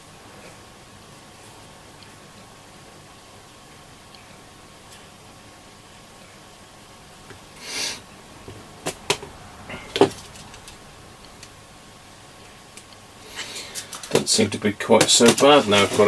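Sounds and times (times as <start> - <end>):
rustle: 0.0 - 14.2.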